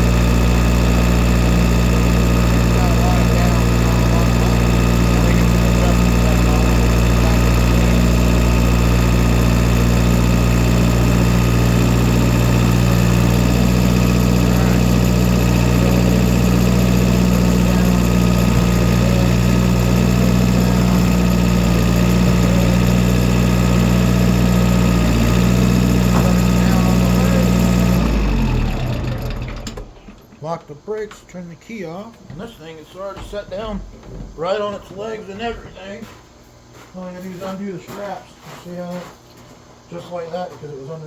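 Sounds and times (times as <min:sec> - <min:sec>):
tractor engine running: 0:00.0 - 0:31.2.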